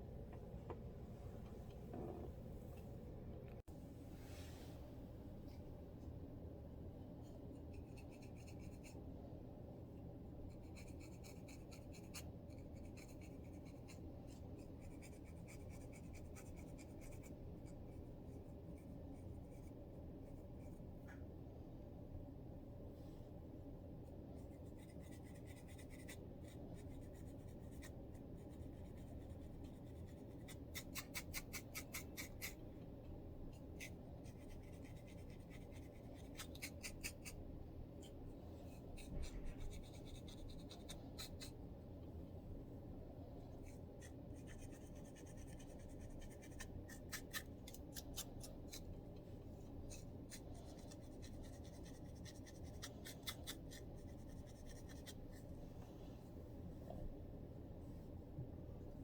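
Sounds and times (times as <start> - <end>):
low steady hum: 0.0 - 59.0
scratching scalp: 33.6 - 37.4.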